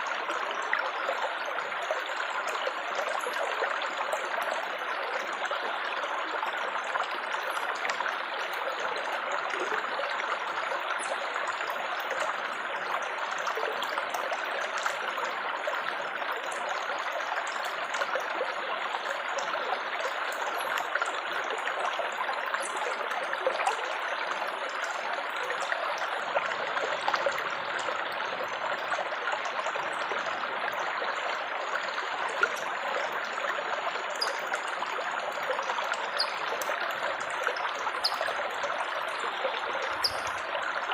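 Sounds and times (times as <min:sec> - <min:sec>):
water trickling and babbling: 0:00.0 - 0:40.9
light water splashes: 0:17.6 - 0:40.9.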